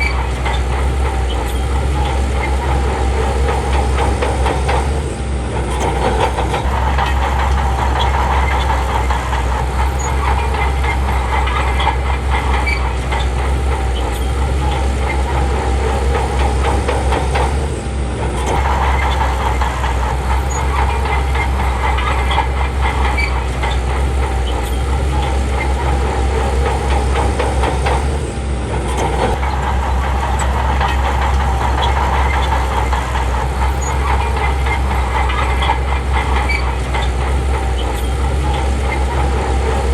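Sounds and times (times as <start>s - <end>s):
bulldozer diesel engine running: 0.0s - 39.9s
machinery clatter: 0.0s - 39.9s.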